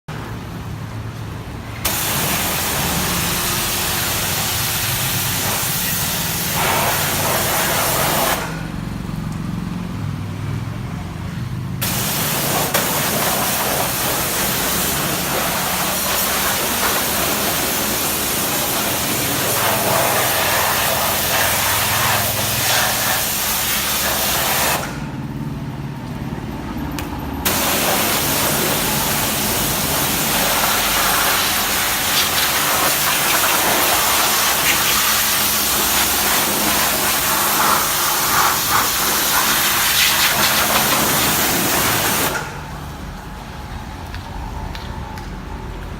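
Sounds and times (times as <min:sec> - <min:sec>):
pressure washer spraying: 0:01.8 - 0:08.6, 0:11.8 - 0:25.0, 0:27.5 - 0:42.6
pump motor hum: 0:27.5 - 0:45.9.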